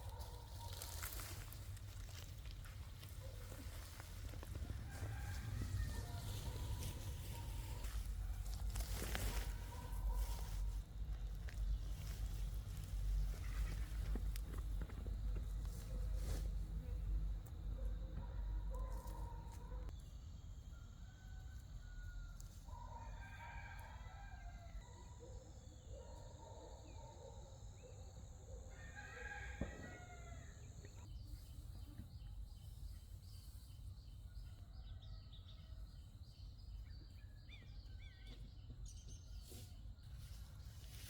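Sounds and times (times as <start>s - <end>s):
rooster crowing faintly: 4.3s - 10.7s, 20.7s - 27.0s, 28.7s - 31.1s.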